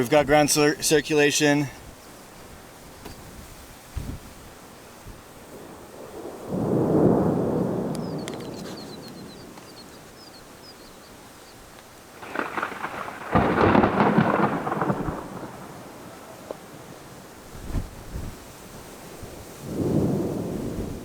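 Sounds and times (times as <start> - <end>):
thunder rumbling: 5.1 - 11.2, 12.0 - 21.0.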